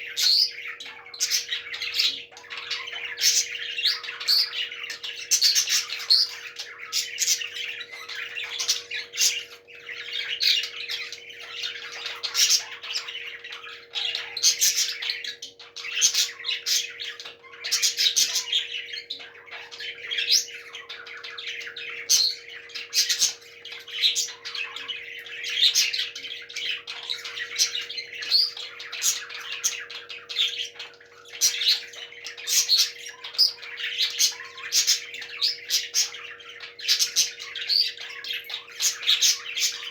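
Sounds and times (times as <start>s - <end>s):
parrots squawking: 0.0s - 39.9s.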